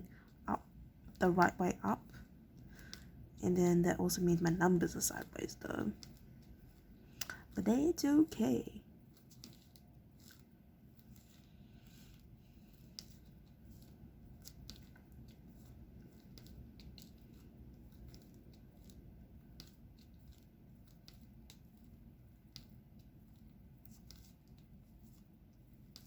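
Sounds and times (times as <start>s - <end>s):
low room hum: 0.0s - 26.0s
small pen clicks and taps: 11.0s - 25.2s.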